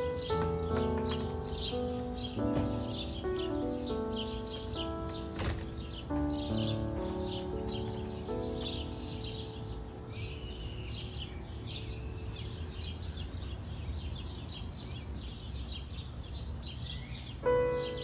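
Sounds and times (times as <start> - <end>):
background music with held notes: 0.0 - 13.5, 17.4 - 18.0
small birds chirping: 0.0 - 18.0.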